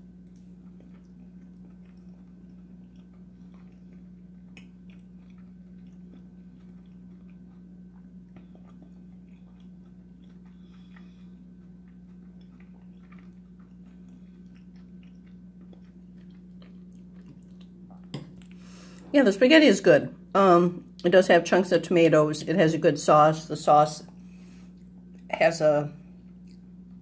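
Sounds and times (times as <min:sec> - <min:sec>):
person chewing: 0:00.0 - 0:19.1, 0:26.2 - 0:27.0
steady low hum: 0:00.0 - 0:27.0.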